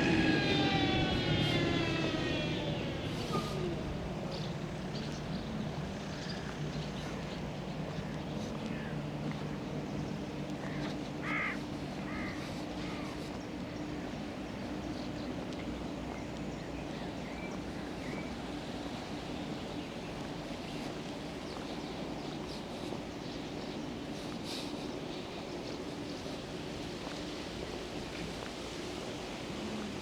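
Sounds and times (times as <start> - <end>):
birds calling: 0.0 - 30.0
steady low hum: 0.0 - 30.0.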